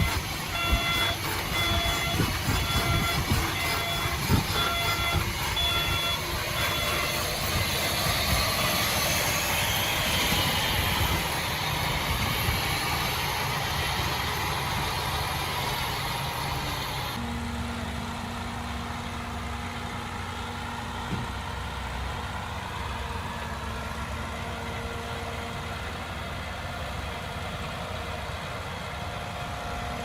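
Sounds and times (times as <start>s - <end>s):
reversing alarm beeping: 0.0s - 12.3s
heavy machinery rumbling: 0.0s - 30.0s.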